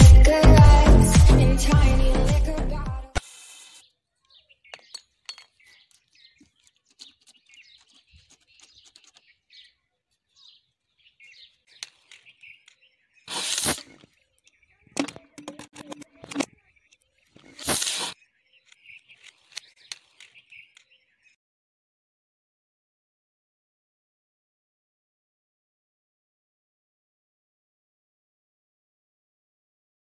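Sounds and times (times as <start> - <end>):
small birds chirping: 3.2 - 21.4
clicks and clatter: 4.7 - 9.3, 11.7 - 12.8, 13.4 - 20.9.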